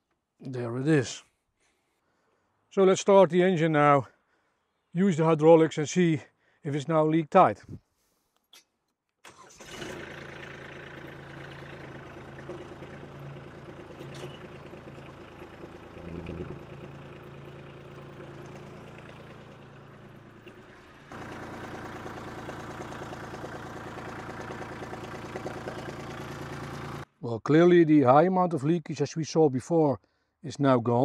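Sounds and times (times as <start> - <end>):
diesel tractor engine idling: 9.3 - 27.1.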